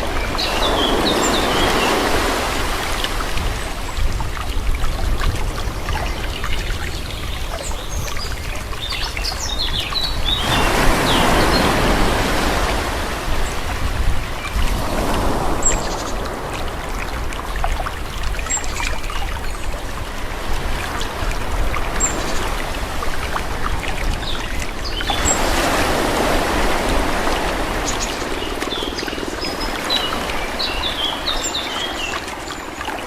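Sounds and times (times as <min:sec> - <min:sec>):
birds chirping: 0:00.0 - 0:04.4, 0:05.6 - 0:13.6, 0:15.2 - 0:20.0
sea waves washing on shore: 0:00.0 - 0:33.0.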